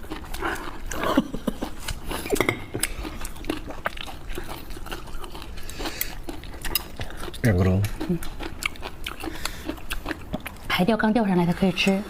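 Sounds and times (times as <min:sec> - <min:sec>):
people chewing and biting: 0:00.0 - 0:12.0
tableware clinking: 0:02.3 - 0:02.8.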